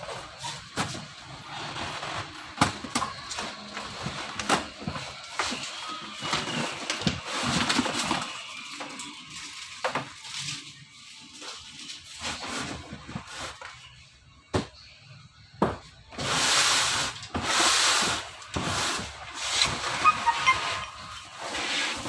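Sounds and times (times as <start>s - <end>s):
cardboard and plastic scraping: 0.0s - 8.5s, 11.9s - 13.8s.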